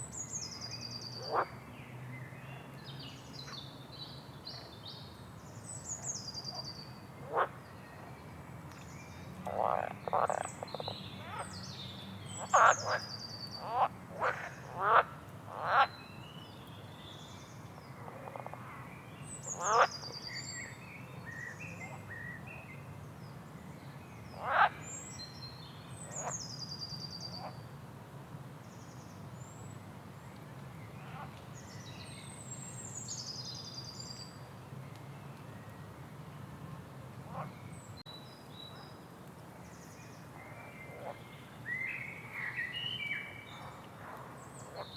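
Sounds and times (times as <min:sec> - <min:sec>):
songbirds chirping: 0:00.0 - 0:27.8, 0:28.5 - 0:44.9
frogs croaking: 0:01.2 - 0:01.6, 0:07.2 - 0:07.6, 0:09.4 - 0:11.4, 0:12.4 - 0:15.9, 0:19.6 - 0:20.0, 0:24.4 - 0:24.8.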